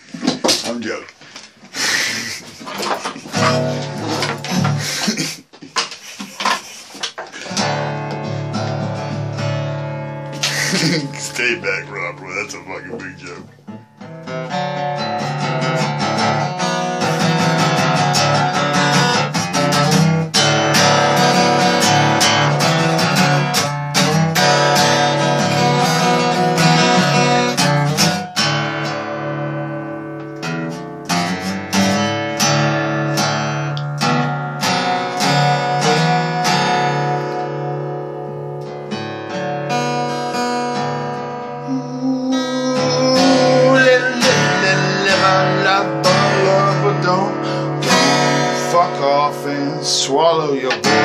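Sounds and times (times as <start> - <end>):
acoustic guitar strummed and plucked: 0.0 - 51.0.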